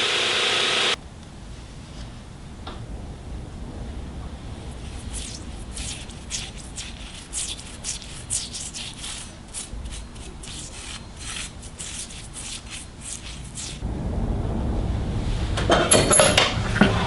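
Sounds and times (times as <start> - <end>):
hand sanding with sandpaper: 4.8 - 13.8.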